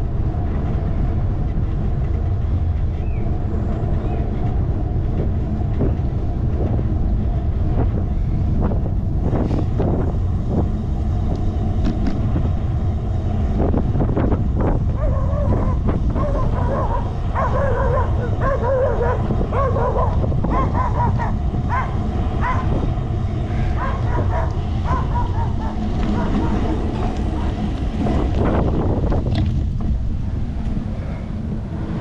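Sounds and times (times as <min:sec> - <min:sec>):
wind rushing on microphone: 0:00.0 - 0:32.0
dog barking and yelping: 0:14.9 - 0:22.8, 0:23.8 - 0:26.8.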